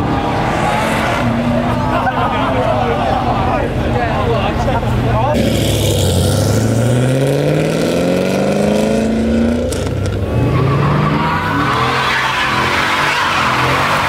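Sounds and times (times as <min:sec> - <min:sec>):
car engine accelerating: 0:00.0 - 0:14.0
tyres squealing: 0:10.5 - 0:14.0.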